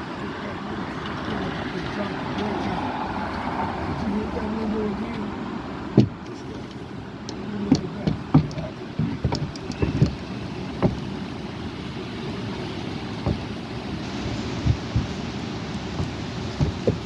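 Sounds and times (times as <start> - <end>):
wind rumbling on microphone: 0.0 - 17.0
sharp knocks and clacks: 7.7 - 11.1, 13.2 - 17.0.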